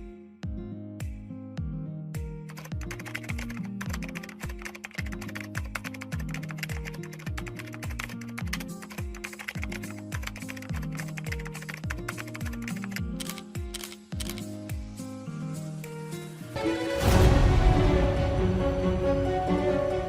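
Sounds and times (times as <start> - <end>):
music with kick-drum beat: 0.0 - 4.1, 11.8 - 15.2
computer keyboard typing: 2.5 - 14.6.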